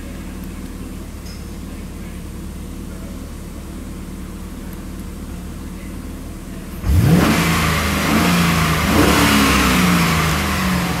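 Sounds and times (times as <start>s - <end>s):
car engine revving: 6.8s - 11.0s.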